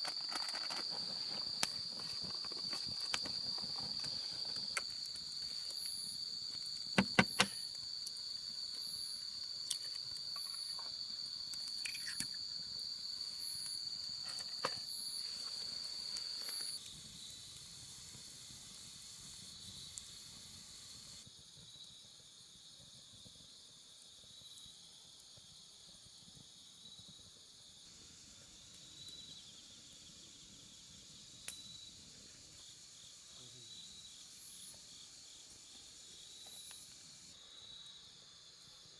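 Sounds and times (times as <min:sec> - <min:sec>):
insects trilling: 0:00.0 - 0:17.5, 0:26.6 - 0:38.9
insect chirp: 0:00.0 - 0:38.9.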